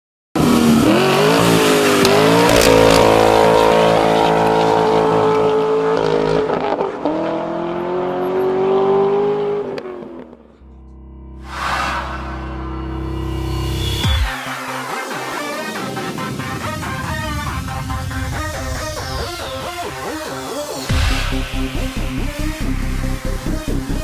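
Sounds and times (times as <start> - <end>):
car engine revving high: 0.4 - 10.8
music: 10.6 - 24.0.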